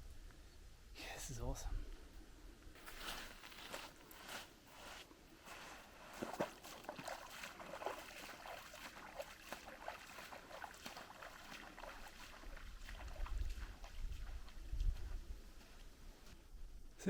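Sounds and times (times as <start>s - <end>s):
footsteps splashing in water: 2.8s - 15.2s.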